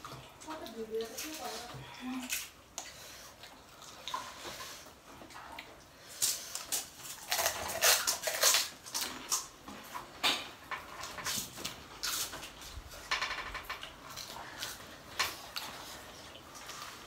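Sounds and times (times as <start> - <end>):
crisp shells crackling when bitten: 6.2 - 9.5.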